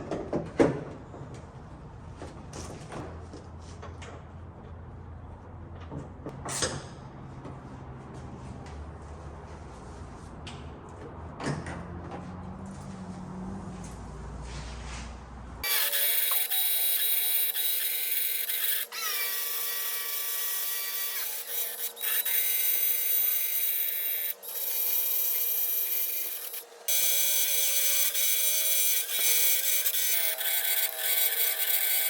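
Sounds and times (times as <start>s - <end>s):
power tool whirring: 15.6s - 32.0s.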